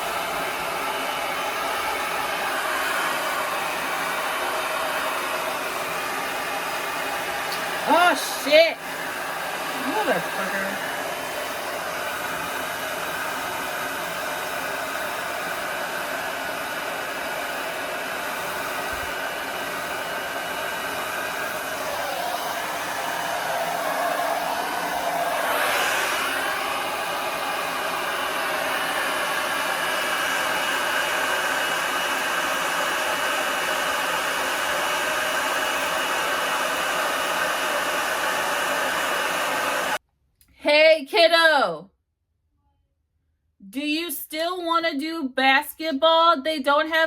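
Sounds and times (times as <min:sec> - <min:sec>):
hair dryer running: 0:00.0 - 0:40.0.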